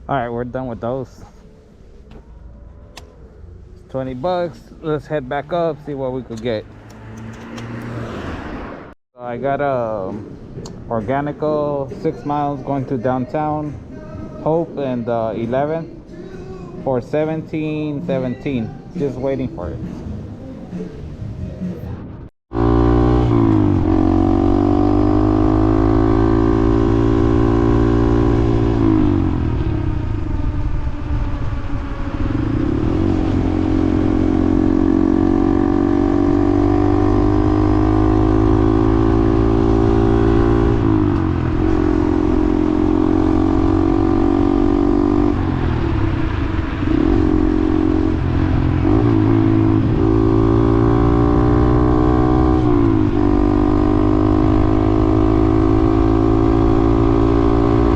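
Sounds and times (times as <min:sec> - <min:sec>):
motorcycle engine running: 0:22.5 - 0:57.9.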